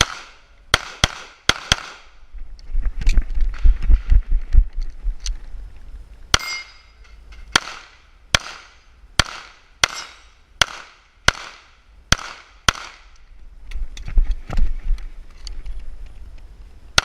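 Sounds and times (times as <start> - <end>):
pistol shots with echo: 0.0 - 2.1, 7.5 - 13.1
microphone handling rumble: 2.2 - 6.2, 13.3 - 16.8.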